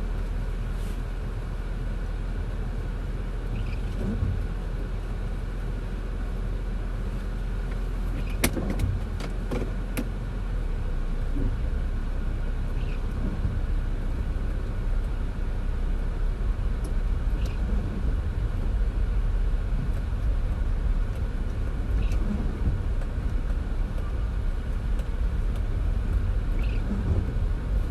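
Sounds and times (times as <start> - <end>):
car road and engine rumble: 0.0 - 27.9.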